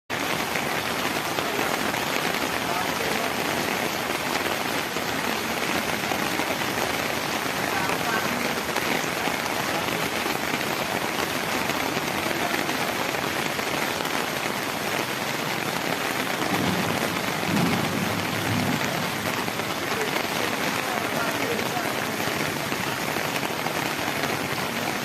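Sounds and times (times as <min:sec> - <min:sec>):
heavy rain pouring: 0:00.1 - 0:25.0.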